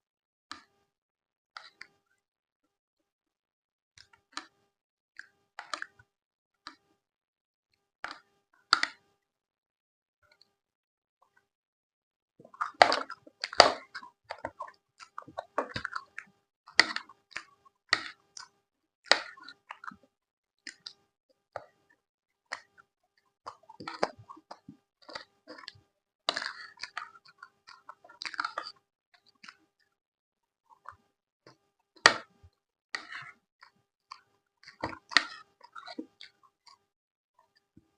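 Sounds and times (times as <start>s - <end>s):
person chewing: 12.4s - 18.5s, 19.1s - 20.1s, 23.5s - 29.8s, 33.0s - 33.4s, 34.1s - 36.8s.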